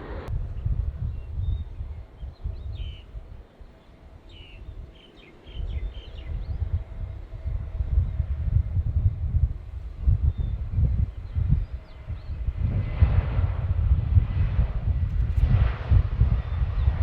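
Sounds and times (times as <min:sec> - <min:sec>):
low rumble: 0:00.0 - 0:03.4, 0:05.6 - 0:17.0.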